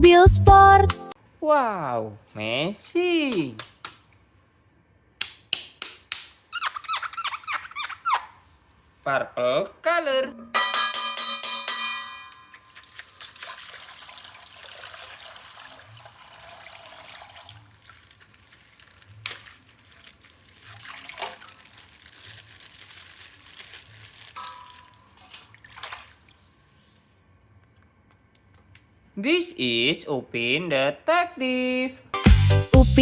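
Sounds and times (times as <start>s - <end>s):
plastic packaging crinkling: 17.4s - 25.6s.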